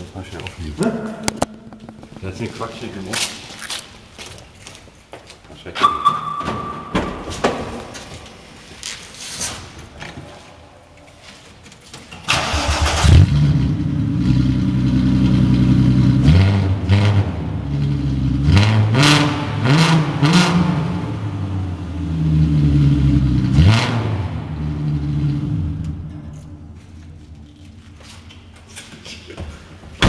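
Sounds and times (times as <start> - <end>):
engine cranking and starting: 12.2 - 13.6.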